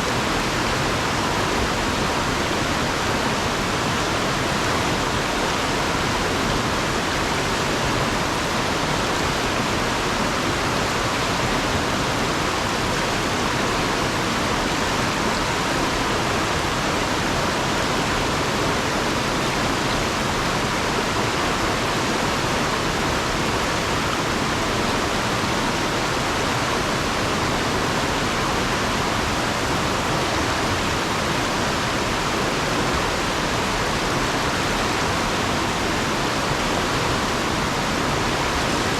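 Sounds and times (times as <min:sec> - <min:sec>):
river water rushing over rocks: 0:00.0 - 0:38.9.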